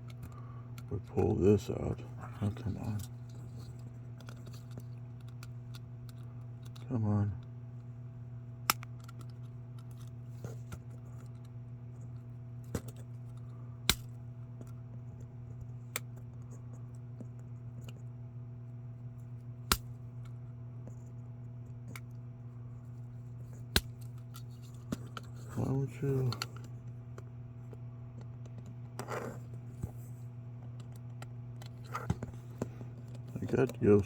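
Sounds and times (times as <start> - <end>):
steady low hum: 0.0 - 34.0
clicks and taps of small parts: 4.2 - 6.9, 8.7 - 11.5.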